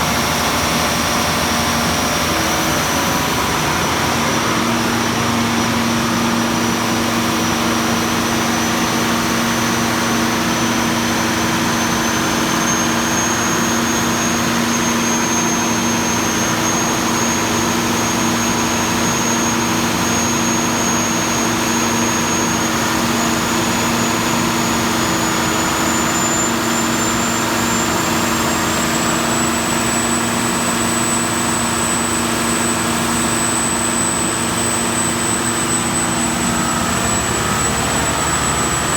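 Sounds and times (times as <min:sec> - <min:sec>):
diesel generator drone: 0:00.0 - 0:38.9
high whine: 0:29.2 - 0:38.9.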